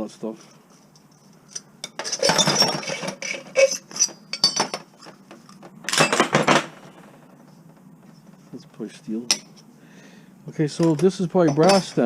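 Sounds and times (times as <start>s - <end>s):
scrap metal clattering and clinking: 1.0s - 7.2s, 10.7s - 12.0s.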